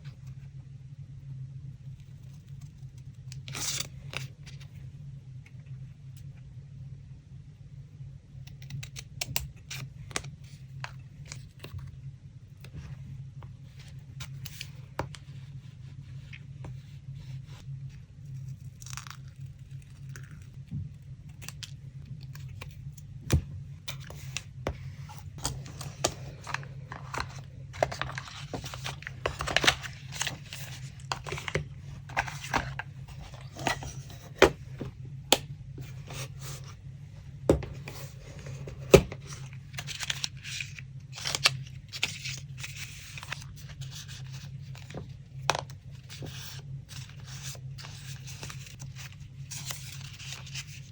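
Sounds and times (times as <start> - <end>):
paper crinkling and tearing: 25.4 - 34.2.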